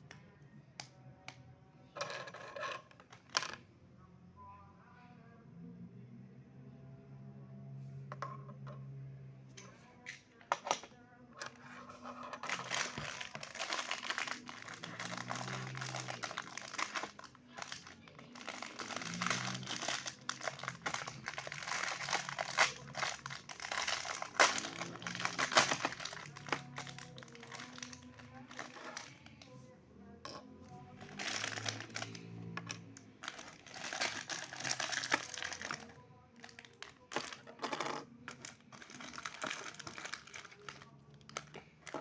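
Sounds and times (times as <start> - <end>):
packaging crinkling and tearing: 12.4 - 29.2, 31.0 - 32.3, 33.2 - 37.4, 38.3 - 42.0.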